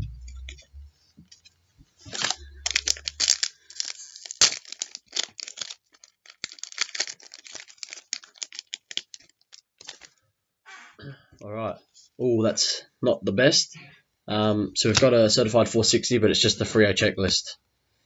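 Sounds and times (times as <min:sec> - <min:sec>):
sharp crack: 0:02.1 - 0:07.8
cards handled: 0:02.1 - 0:10.1
wrapper tearing and crinkling: 0:02.1 - 0:10.2.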